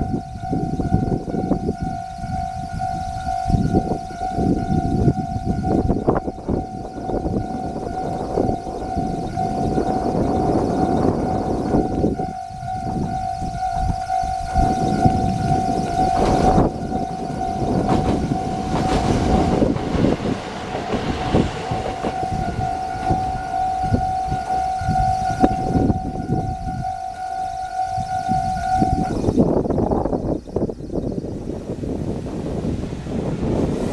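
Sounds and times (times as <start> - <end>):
level crossing alarm tone: 0.0 - 31.4
train rumble: 0.0 - 33.9
wind on microphone: 0.0 - 33.9.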